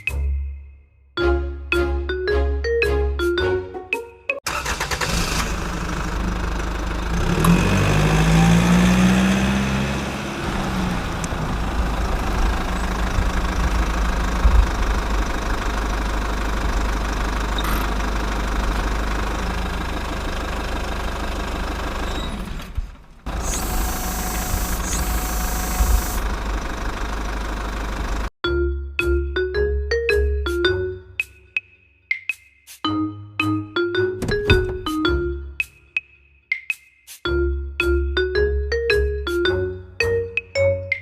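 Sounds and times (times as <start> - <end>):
tractor engine idling and revving: 4.4 - 28.4.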